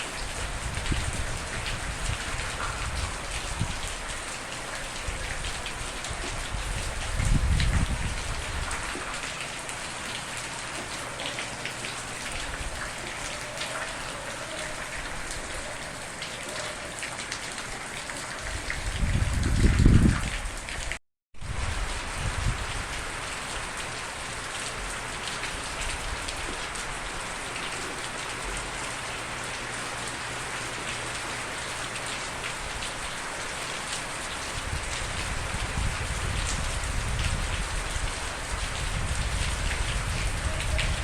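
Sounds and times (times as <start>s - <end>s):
rain falling: 0.0s - 41.0s.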